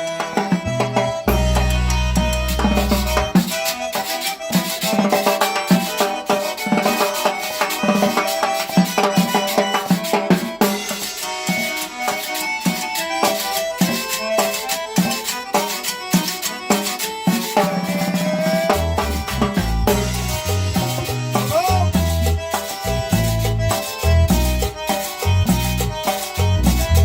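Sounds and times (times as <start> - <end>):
drums and hand percussion: 0.0 - 27.0
melodic instrument lines: 0.0 - 27.0
bass line: 0.6 - 3.5, 17.9 - 27.0.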